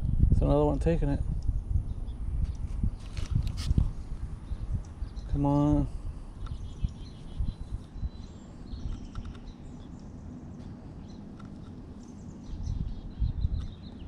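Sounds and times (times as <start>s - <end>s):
faint bird chirps: 6.4s - 11.3s.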